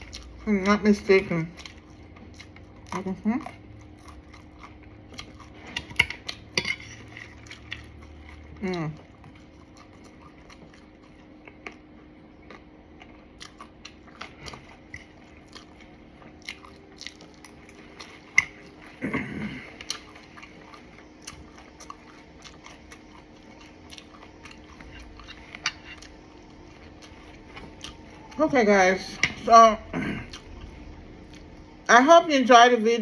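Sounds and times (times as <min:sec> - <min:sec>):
person chewing crunchy food: 0:00.0 - 0:31.9
closed-mouth hum: 0:18.9 - 0:32.7.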